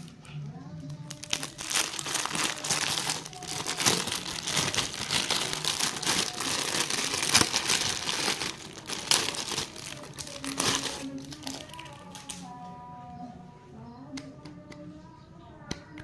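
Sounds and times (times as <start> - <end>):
plastic wrappers crinkling: 0.0 - 12.6.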